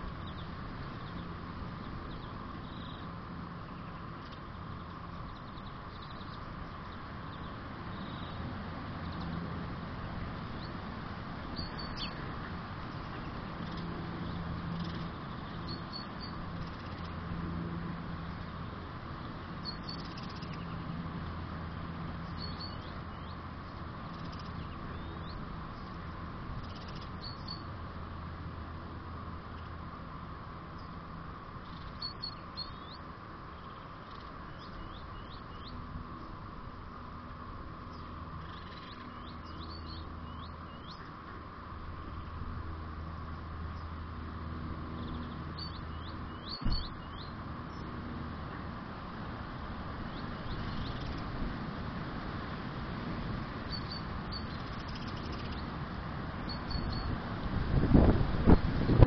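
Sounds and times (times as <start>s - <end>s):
birds chirping: 0.0s - 8.4s, 11.4s - 17.2s, 18.2s - 21.1s, 22.1s - 27.7s, 31.6s - 36.4s, 37.8s - 41.4s, 43.6s - 48.0s, 50.0s - 51.3s, 53.6s - 55.8s, 56.4s - 57.2s.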